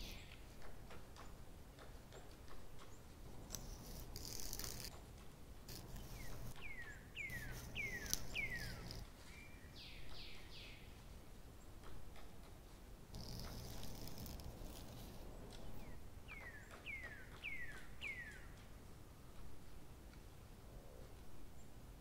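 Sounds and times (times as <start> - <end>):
faint bird calls: 5.7 - 10.8.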